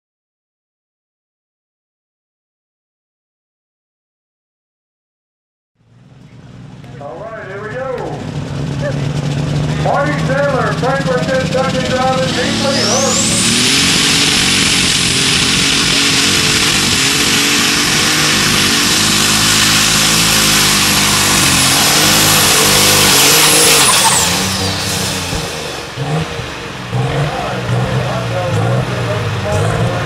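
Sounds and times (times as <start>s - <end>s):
tractor engine rumble: 5.8s - 30.0s
high turbo whistle: 11.9s - 15.9s, 17.3s - 25.9s.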